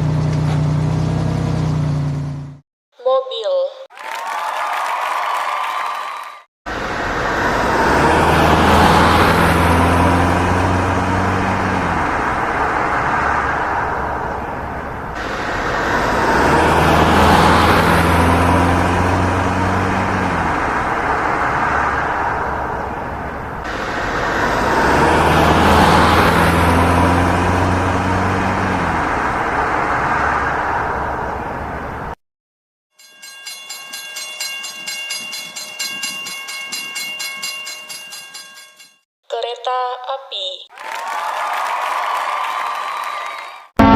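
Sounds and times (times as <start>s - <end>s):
car driving past: 6.7s - 32.2s.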